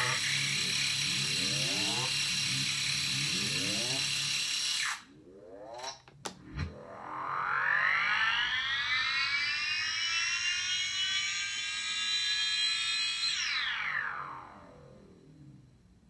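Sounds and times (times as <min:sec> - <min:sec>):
buzzy synth note gliding down: 0:06.7 - 0:11.7.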